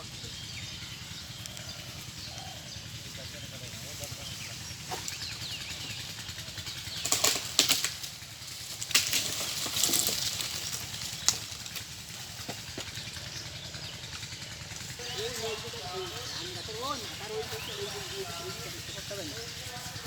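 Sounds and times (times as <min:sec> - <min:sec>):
tree branches rustling: 0:00.0 - 0:20.0
twig snaps: 0:07.0 - 0:08.1, 0:08.7 - 0:11.9.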